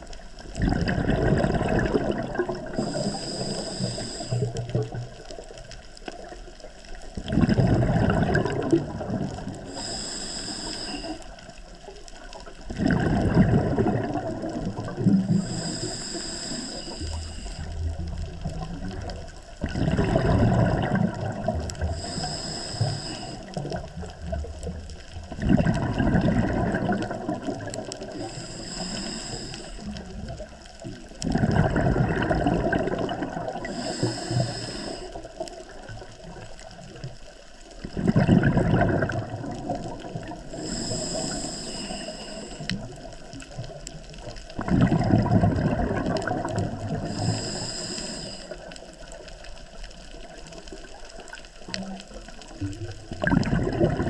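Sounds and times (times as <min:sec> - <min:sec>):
rush of exhaled bubbles: 0:00.0 - 0:54.0
regulator hiss on inhale: 0:02.4 - 0:05.4, 0:09.4 - 0:12.5, 0:14.4 - 0:18.2, 0:21.7 - 0:24.1, 0:27.4 - 0:30.9, 0:33.6 - 0:36.8, 0:40.2 - 0:44.5, 0:46.5 - 0:51.3.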